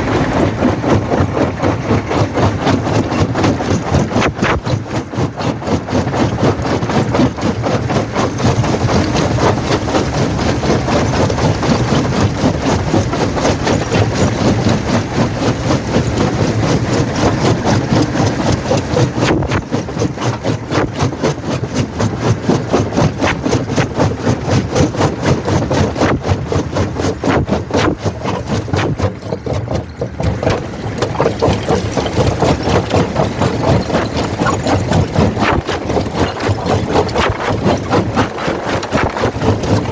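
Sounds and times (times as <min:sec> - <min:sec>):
jaw crusher rattling drone: 0:00.0 - 0:39.9.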